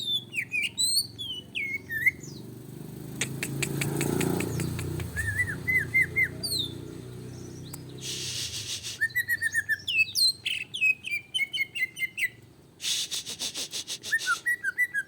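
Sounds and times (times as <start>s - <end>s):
bird singing with sweeping whistles: 0.0s - 2.5s, 3.3s - 15.0s
bird clicks: 3.2s - 5.3s.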